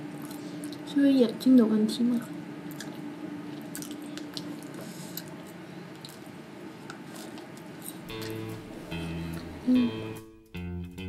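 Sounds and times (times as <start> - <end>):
biting and chewing snack: 2.7 - 9.5.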